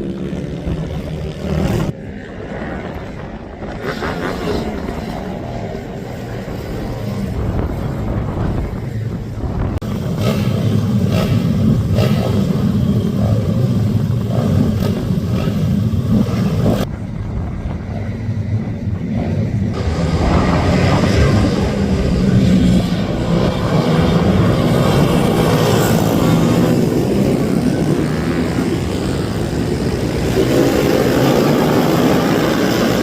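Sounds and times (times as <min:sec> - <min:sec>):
minibike engines racing: 0:00.0 - 0:33.0.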